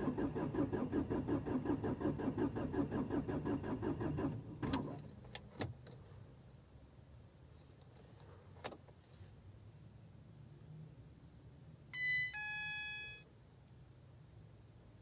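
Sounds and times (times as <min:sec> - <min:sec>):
dashboard chime: 0:12.0 - 0:13.2.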